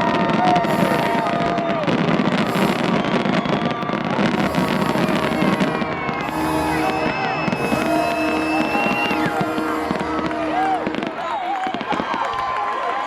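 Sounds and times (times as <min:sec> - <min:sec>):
fireworks crackling and popping: 0:00.0 - 0:13.0.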